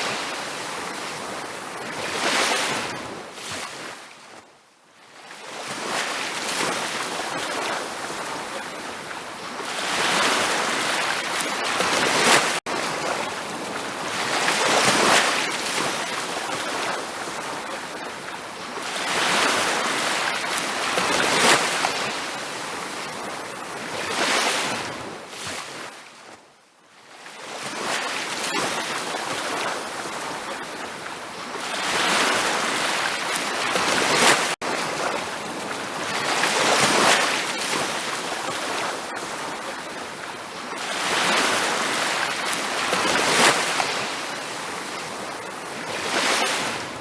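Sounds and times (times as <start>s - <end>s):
ocean surf breaking on a beach: 0.0s - 4.4s, 5.1s - 26.3s, 27.1s - 47.0s.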